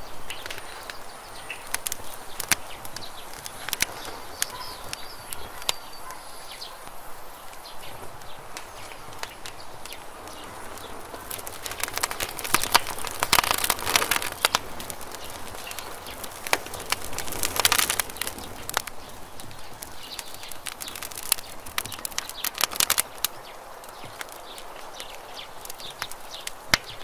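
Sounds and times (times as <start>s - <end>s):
burning wood hissing: 0.0s - 27.0s
campfire crackling and popping: 0.0s - 27.0s.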